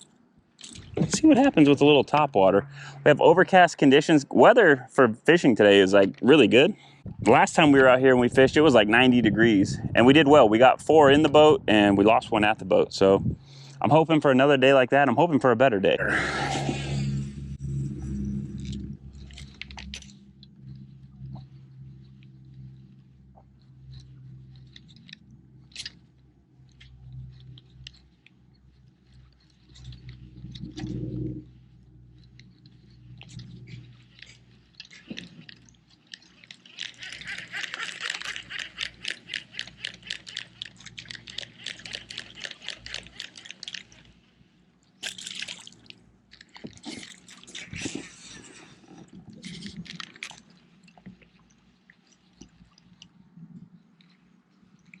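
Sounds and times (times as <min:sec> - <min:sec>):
low steady hum: 0:00.0 - 0:55.0
fishing reel ticking: 0:17.0 - 0:48.3, 0:49.4 - 0:51.4.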